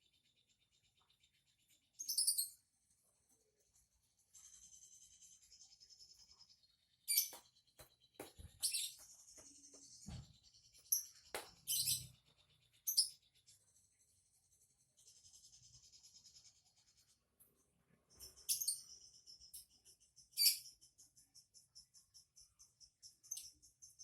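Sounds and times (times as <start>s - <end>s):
cage bird chirping: 0.0s - 24.0s
soft knocks and thumps: 7.2s - 10.6s.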